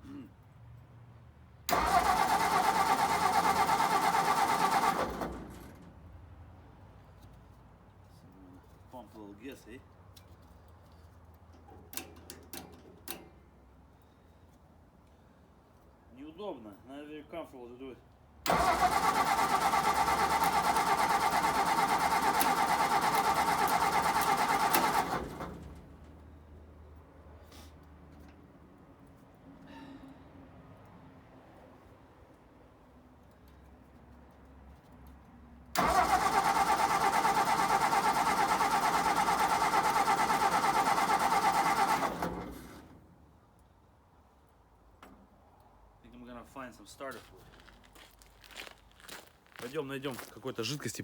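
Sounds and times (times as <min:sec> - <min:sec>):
engine cranking without starting: 0:01.7 - 0:05.9, 0:18.5 - 0:26.1, 0:35.8 - 0:43.0.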